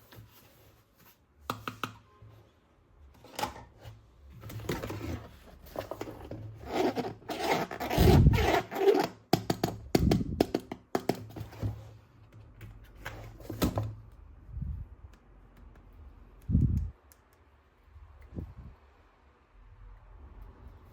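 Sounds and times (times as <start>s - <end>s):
plastic packaging rustling and scraping: 3.2s - 9.2s.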